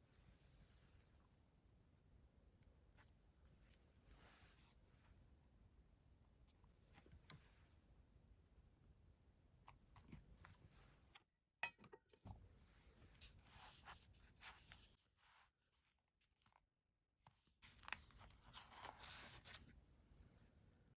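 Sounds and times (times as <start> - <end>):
paper rustling: 17.3 - 19.8.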